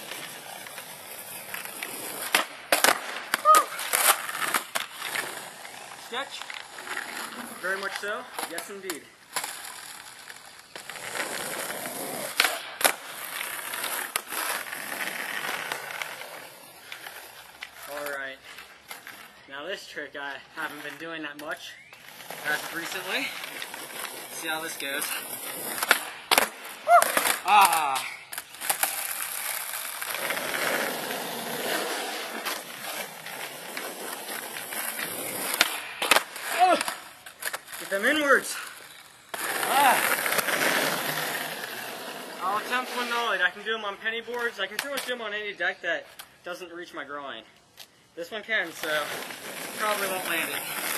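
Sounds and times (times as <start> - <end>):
skateboard wheels rolling: 0.0 - 19.4, 20.5 - 45.4, 48.6 - 50.9
skateboard clacking on ground: 33.3 - 38.2, 44.3 - 45.3.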